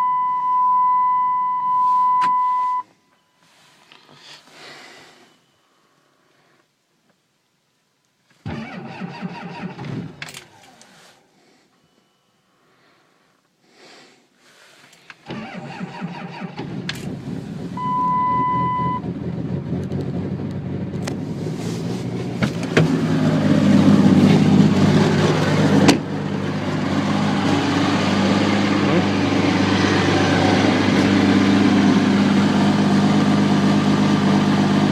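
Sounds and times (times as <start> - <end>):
short steady beep: 0.0 - 3.4, 17.8 - 19.0
diesel engine running: 15.3 - 34.9.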